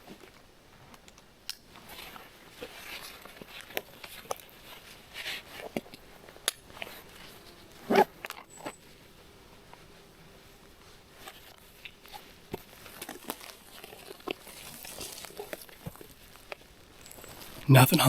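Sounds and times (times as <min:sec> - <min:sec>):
small clicks and snaps: 0:00.9 - 0:01.7.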